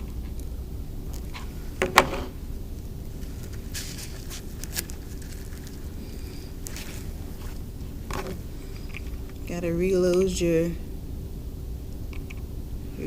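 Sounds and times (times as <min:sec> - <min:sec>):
steady low hum: 0:00.0 - 0:13.0
rustling: 0:01.1 - 0:09.5.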